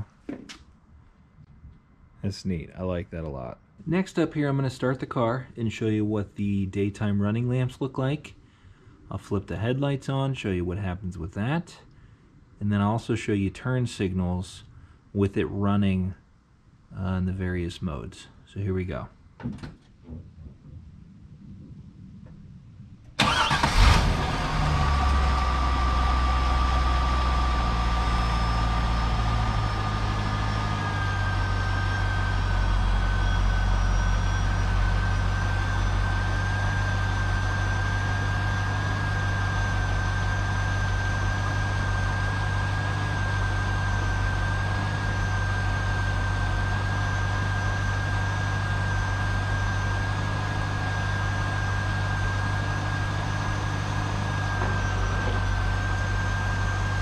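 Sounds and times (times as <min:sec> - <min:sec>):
thin steady whine: 0:20.1 - 0:57.0
car engine starting and idling: 0:23.0 - 0:57.0.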